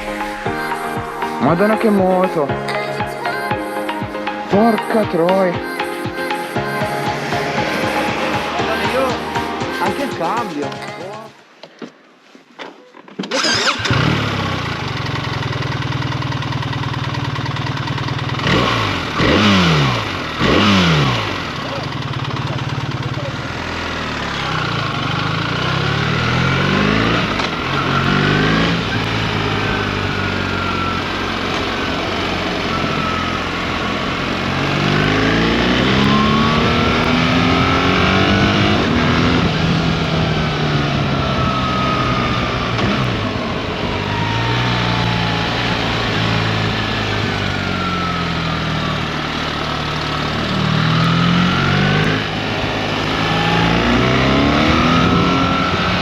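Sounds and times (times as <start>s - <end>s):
motorcycle engine revving through gears: 13.2s - 56.0s.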